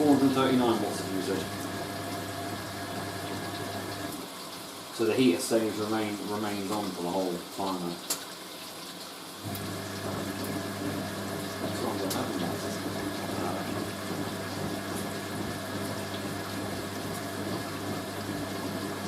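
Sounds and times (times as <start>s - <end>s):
washing machine motor humming: 0.0s - 4.3s, 9.4s - 19.0s
water rushing and sloshing: 0.0s - 4.8s, 9.4s - 19.0s.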